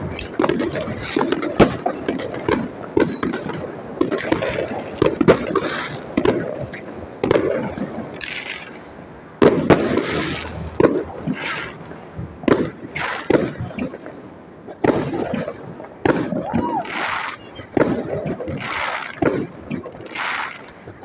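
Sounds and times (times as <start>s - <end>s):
firework shells bursting: 0.0s - 14.0s
falling firework whistle: 1.6s - 7.8s, 16.2s - 18.0s.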